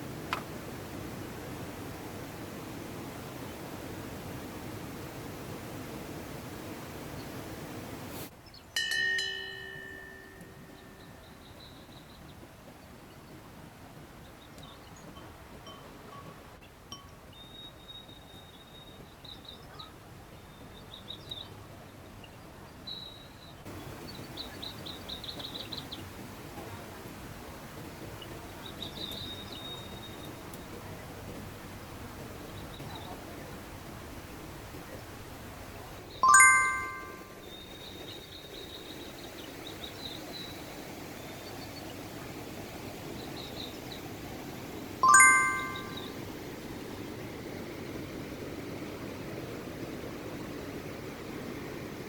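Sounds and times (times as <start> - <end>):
small birds singing trills: 9.4 - 12.4, 16.6 - 26.1, 28.2 - 30.6, 36.2 - 42.0
mountain stream rushing: 23.7 - 28.1, 39.6 - 52.0
high bird chirps: 36.2 - 37.6, 45.0 - 46.2.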